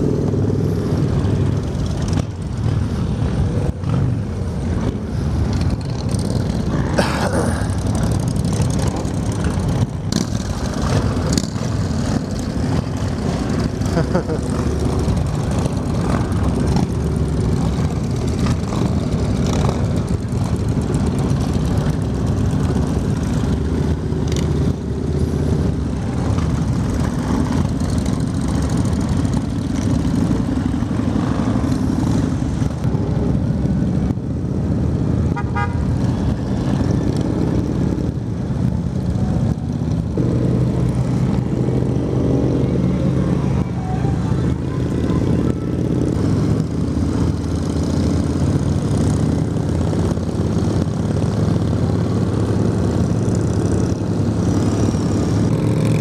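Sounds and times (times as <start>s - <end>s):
group of motorcycles riding: 0.0s - 56.0s
motorcycle engine running: 0.0s - 56.0s
horn toot: 35.3s - 35.9s.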